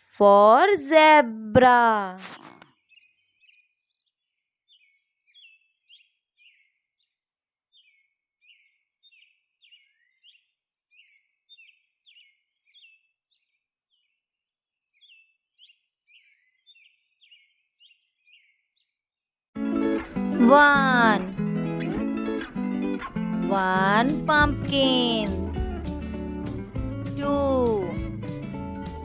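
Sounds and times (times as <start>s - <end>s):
faint bird chirping: 2.2s - 14.2s, 15.0s - 19.0s.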